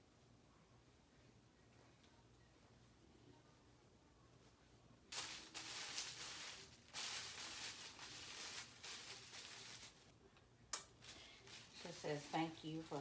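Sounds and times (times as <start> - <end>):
packaging rustling: 5.1 - 10.1, 11.0 - 13.0.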